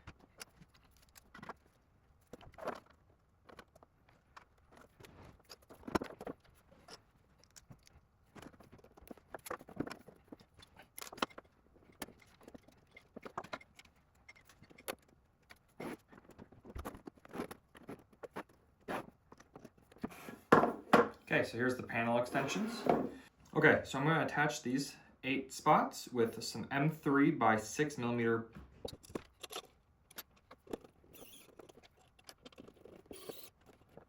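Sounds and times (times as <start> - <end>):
plastic parts clicking and rattling: 0.0 - 20.1, 28.8 - 34.0.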